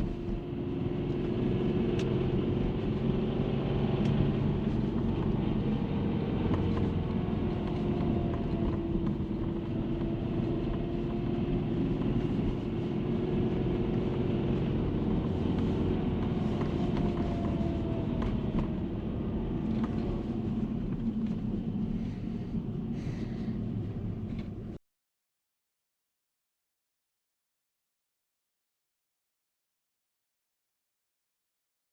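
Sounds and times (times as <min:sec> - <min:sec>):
car engine humming: 0:00.0 - 0:24.8
engine rattle: 0:00.0 - 0:24.8.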